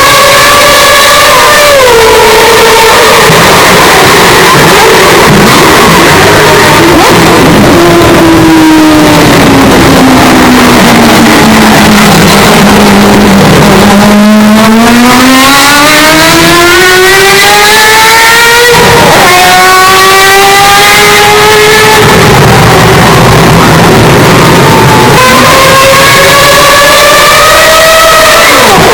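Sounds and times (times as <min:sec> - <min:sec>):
car engine revving and accelerating: 0:00.0 - 0:28.9.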